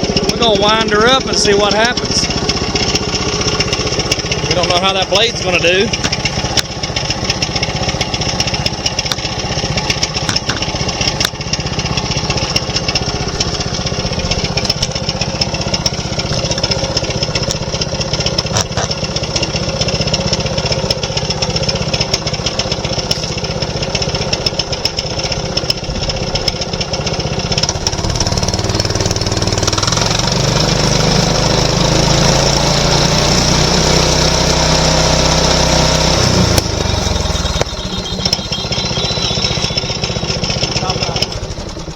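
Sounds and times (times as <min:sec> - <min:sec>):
sawmill engine running: 0:00.0 - 0:41.9.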